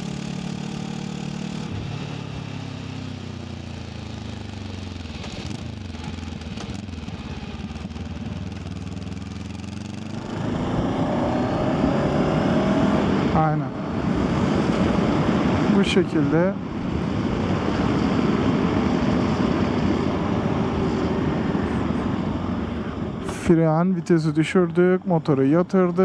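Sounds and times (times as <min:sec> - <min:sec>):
motorcycle engine: 0:00.0 - 0:23.8
wind noise: 0:10.1 - 0:23.7.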